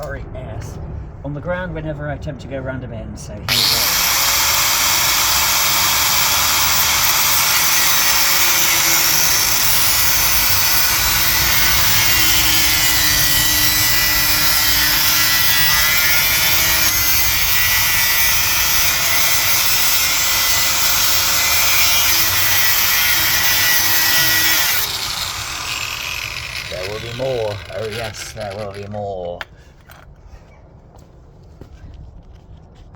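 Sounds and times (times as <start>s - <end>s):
angle grinder cutting metal pipe: 3.5s - 29.1s.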